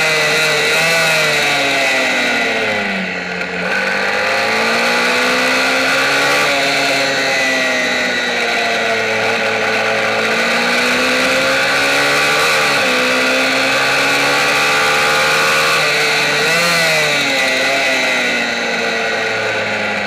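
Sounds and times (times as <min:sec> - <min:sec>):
motorcycle engine revving high: 0:00.0 - 0:20.0.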